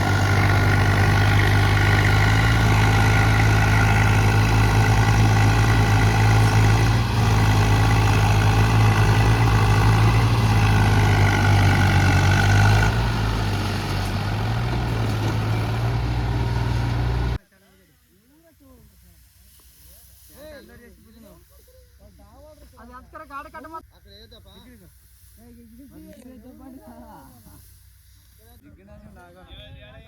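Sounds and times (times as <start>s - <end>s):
tractor diesel engine running: 0.0s - 17.4s.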